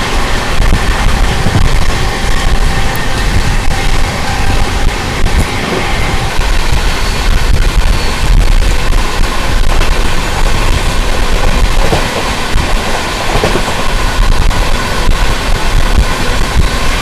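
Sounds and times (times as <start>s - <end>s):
train coaches rumbling and rattling: 0.0s - 17.0s.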